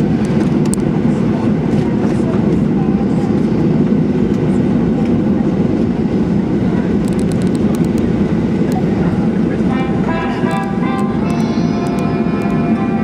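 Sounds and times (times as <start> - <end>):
airplane cabin rumble: 0.0 - 13.0
music: 9.7 - 13.0.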